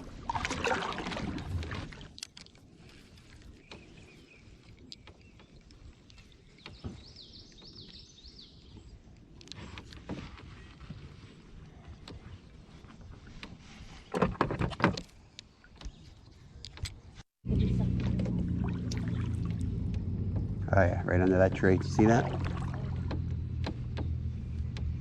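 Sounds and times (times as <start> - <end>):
paddle swishing water: 0.0 - 7.8, 17.6 - 20.4, 21.1 - 24.8
bird singing: 3.5 - 9.1.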